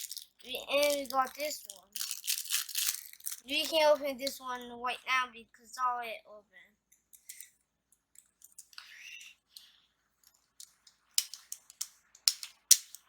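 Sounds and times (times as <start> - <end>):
packaging crinkling: 0.0 - 3.8
plastic clicks and taps: 10.6 - 13.0.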